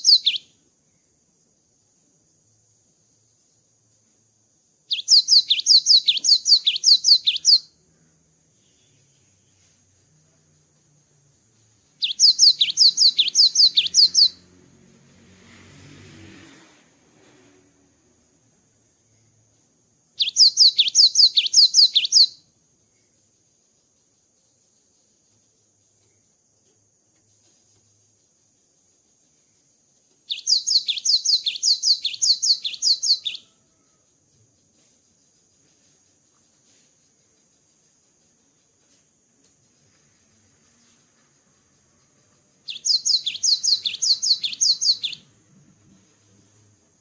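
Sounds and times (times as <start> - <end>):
bird singing whistled notes: 0.0 - 0.6, 4.8 - 7.8, 11.9 - 14.5, 20.2 - 26.3, 28.8 - 34.1, 39.6 - 46.8.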